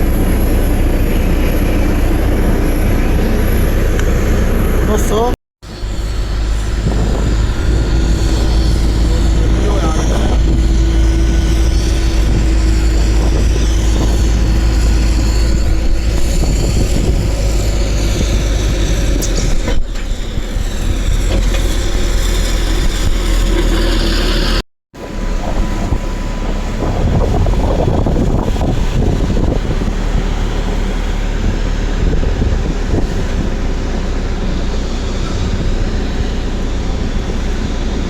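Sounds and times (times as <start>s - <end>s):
faint wavering whine: 0.0s - 18.6s
turboprop engines running: 0.0s - 38.0s
wind on microphone: 0.0s - 38.0s.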